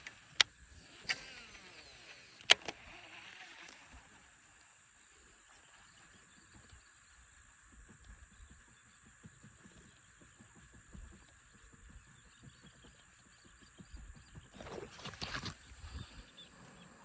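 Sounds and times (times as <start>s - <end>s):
fishing reel clicks: 0.0s - 4.7s
fishing reel spool whirring: 0.0s - 11.2s, 14.5s - 17.0s
high outdoor hiss: 0.0s - 17.0s.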